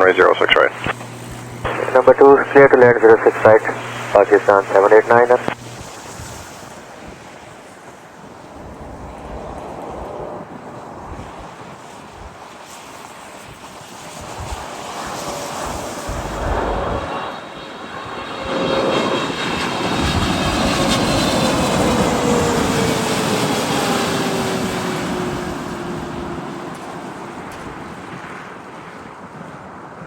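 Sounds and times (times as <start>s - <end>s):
jet engine whine falling: 0.0s - 5.9s, 14.6s - 28.7s
jet airliner passing: 0.0s - 11.7s, 12.6s - 29.8s.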